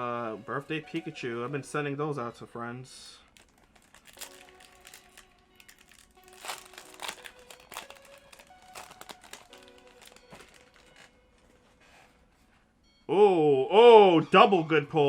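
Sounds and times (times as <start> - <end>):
soft background music: 0.0 - 15.0
card packs crinkling: 3.2 - 11.6.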